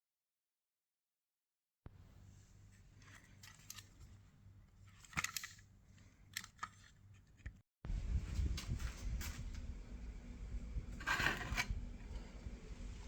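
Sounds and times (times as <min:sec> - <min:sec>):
low steady hum: 0:01.9 - 0:13.0
handling clicks and scrapes: 0:02.5 - 0:07.6, 0:10.9 - 0:12.2.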